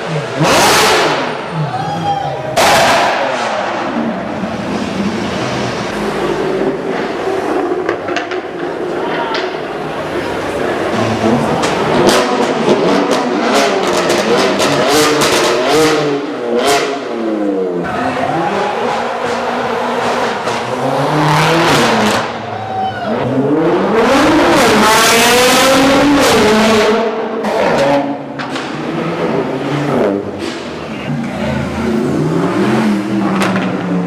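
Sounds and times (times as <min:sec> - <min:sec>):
supercar engine revving: 0:00.0 - 0:01.6, 0:02.5 - 0:34.0
exhaust pops and crackles: 0:06.9 - 0:09.6.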